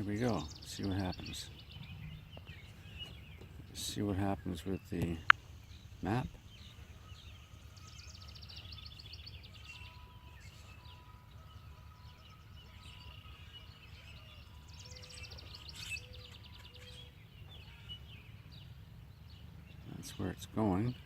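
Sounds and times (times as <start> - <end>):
faint low outdoor rumble: 0.0 - 21.0
songbird trilling: 0.0 - 21.0.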